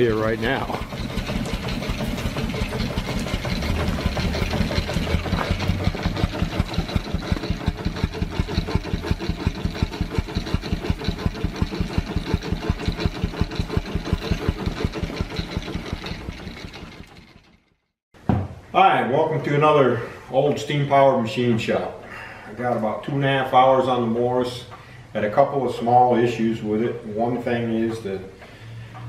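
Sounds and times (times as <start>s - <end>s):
steam engine running: 0.0s - 17.7s
light knocking from engine: 0.5s - 17.6s.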